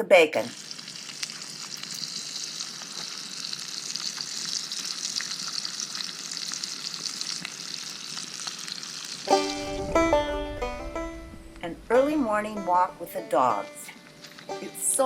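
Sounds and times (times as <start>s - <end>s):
bacon sizzling in a pan: 0.0s - 9.4s
fat crackling and popping: 0.4s - 15.0s.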